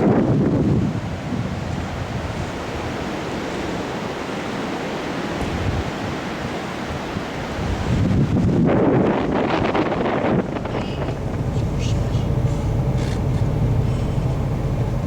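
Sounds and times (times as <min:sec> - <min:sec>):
strong wind blowing: 0:00.0 - 0:15.0.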